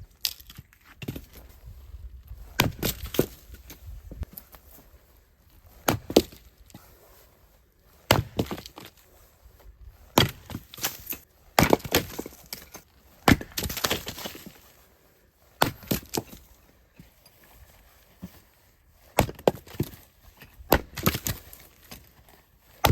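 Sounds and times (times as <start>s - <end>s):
firewood splitting knocks: 2.5s - 4.4s, 5.8s - 6.5s, 8.1s - 8.9s, 10.1s - 14.6s, 15.6s - 16.4s, 19.2s - 22.1s.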